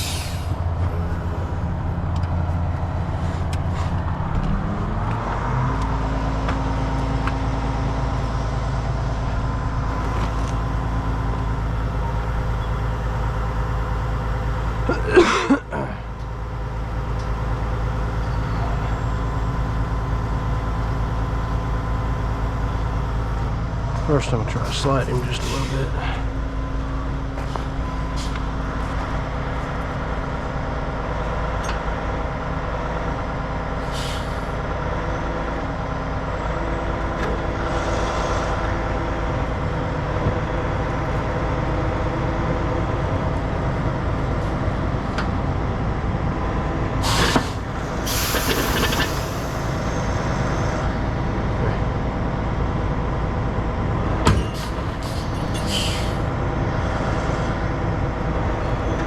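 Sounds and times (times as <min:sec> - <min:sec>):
diesel truck engine under load: 0:00.0 - 0:59.0
air hiss bursts: 0:47.0 - 0:50.2.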